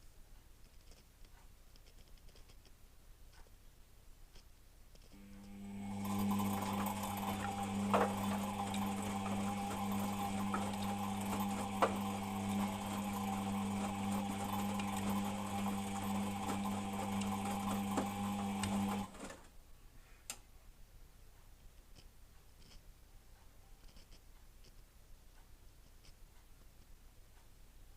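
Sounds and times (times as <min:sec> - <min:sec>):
faint ticks: 0:00.3 - 0:03.6, 0:21.4 - 0:27.6
washing machine motor hum: 0:05.2 - 0:19.5.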